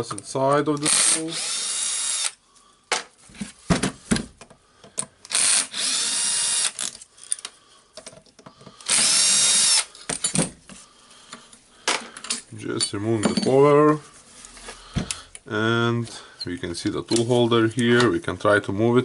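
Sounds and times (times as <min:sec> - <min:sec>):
drill-driver whining: 0:00.8 - 0:02.4, 0:05.3 - 0:07.0, 0:08.8 - 0:09.9
clicks of parts being handled: 0:06.8 - 0:08.9.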